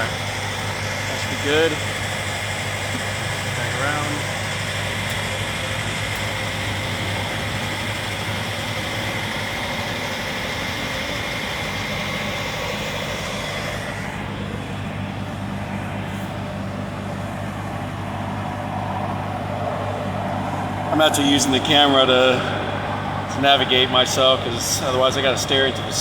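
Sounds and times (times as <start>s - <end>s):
hiss: 0.0s - 14.3s
lift engine running: 0.0s - 26.0s
thin whine: 0.0s - 26.0s.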